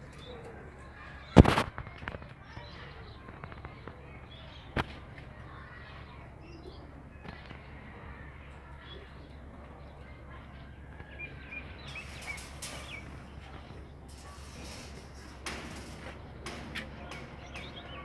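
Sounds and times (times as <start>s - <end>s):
bird chirps: 10.7s - 13.4s, 17.0s - 18.0s
scratchy rustling: 11.8s - 17.8s.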